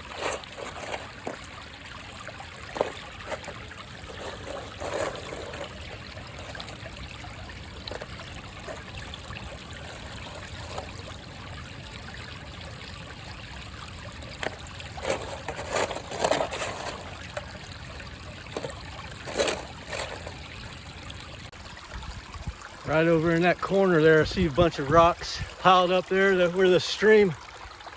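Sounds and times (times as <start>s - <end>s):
scrapes and knocks: 0.0s - 1.5s, 2.6s - 7.0s, 7.7s - 11.0s, 14.4s - 17.5s, 18.5s - 20.4s
creek trickling over rocks: 0.0s - 27.9s.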